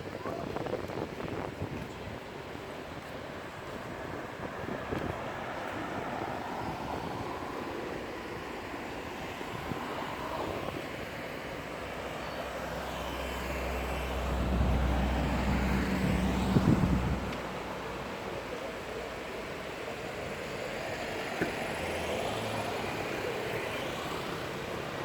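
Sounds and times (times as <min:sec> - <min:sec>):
outdoor background noise: 0:00.0 - 0:25.0
vehicle engine passing by: 0:12.6 - 0:17.3.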